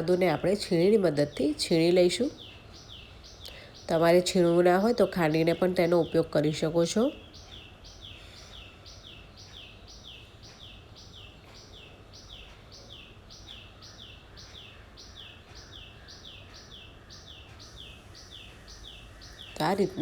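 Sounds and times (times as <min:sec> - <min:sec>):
bird chirping: 0:00.0 - 0:20.0.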